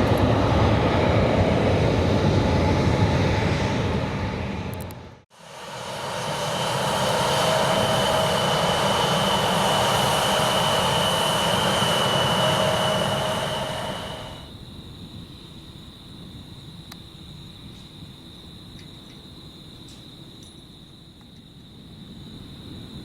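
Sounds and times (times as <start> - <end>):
jet engines running: 0.0 - 14.6.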